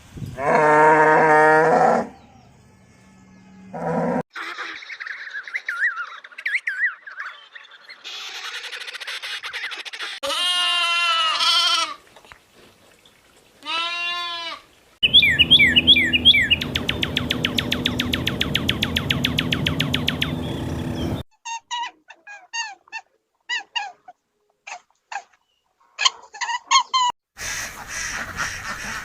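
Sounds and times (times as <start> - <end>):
wobbling bleats: 10.2 - 12.0
animal chirps: 15.0 - 22.8.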